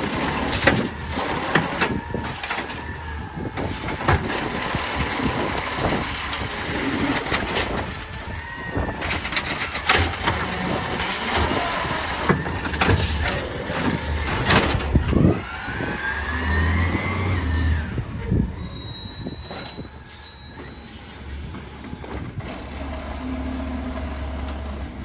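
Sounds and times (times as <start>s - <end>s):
metallic clanks and knocks: 0.0s - 15.4s
garbage truck engine running: 0.0s - 20.3s, 21.0s - 25.0s
rising squeal: 0.0s - 24.7s.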